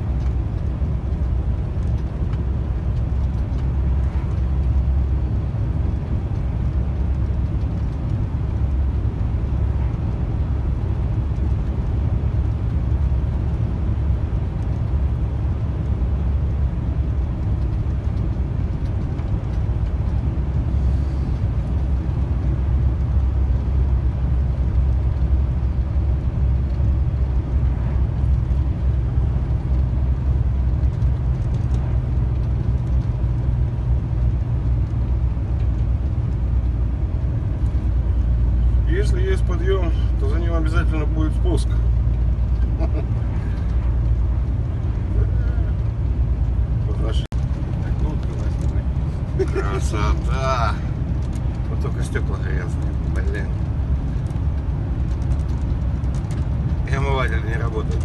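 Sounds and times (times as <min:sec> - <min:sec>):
road noise: 0:00.0 - 0:58.0
truck engine drone: 0:00.0 - 0:58.0.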